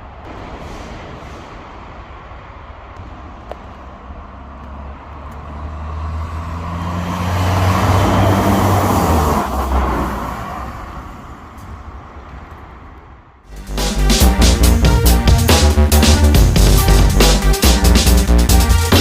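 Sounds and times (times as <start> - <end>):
diesel car driving by: 2.1 - 12.3.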